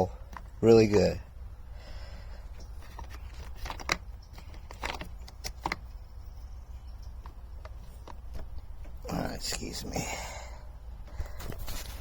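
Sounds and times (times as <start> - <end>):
low steady hum: 0.0 - 12.0
plastic parts clicking: 2.8 - 5.9.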